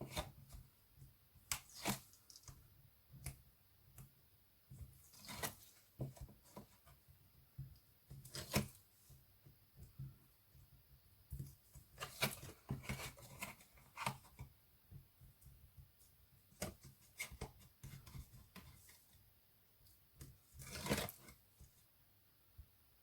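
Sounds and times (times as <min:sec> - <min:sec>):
paper and card rustling: 0:20.5 - 0:21.7.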